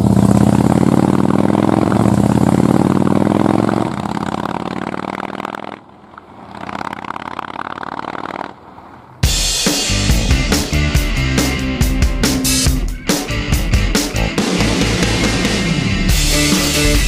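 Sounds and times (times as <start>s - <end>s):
motorcycle engine running: 0.0s - 17.0s
drum-led music: 9.2s - 17.0s.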